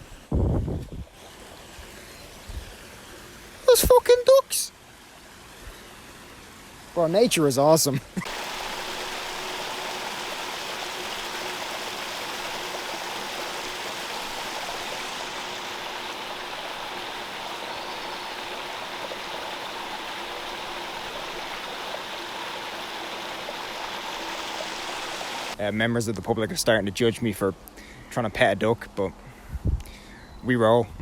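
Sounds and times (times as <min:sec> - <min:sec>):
stream water rushing: 0:01.0 - 0:25.6.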